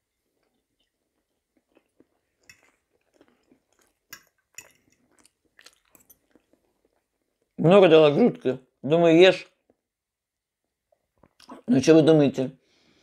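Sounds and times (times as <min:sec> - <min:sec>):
faint chewing: 0:00.0 - 0:07.6.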